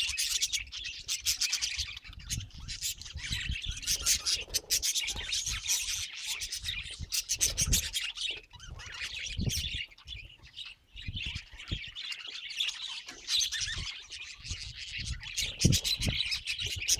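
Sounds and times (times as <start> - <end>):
budgies chattering and squawking: 0.0 - 16.9.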